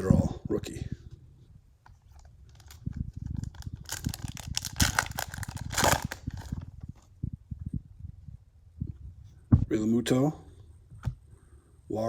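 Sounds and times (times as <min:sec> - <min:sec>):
wrapper tearing and crinkling: 0:02.4 - 0:06.6.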